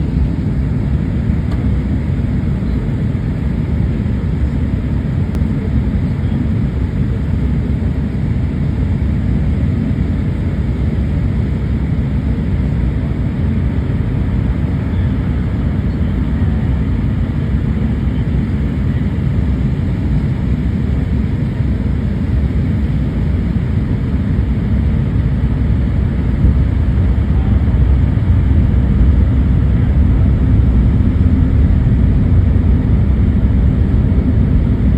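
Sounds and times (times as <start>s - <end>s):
airliner cabin engine rumble: 0.0s - 34.9s.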